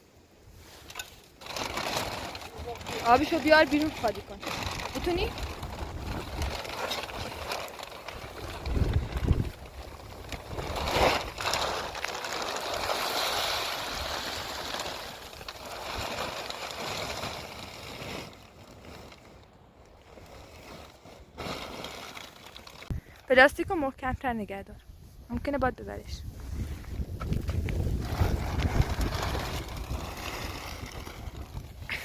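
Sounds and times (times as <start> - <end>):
water pouring and splashing: 0.8 - 19.1.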